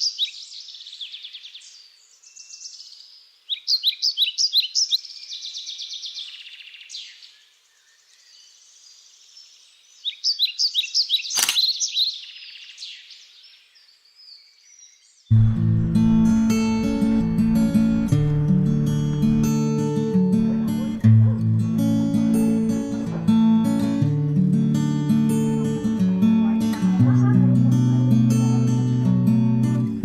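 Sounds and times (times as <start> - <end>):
birds chirping and trilling: 0.0 - 24.1
sharp click: 11.3 - 11.7.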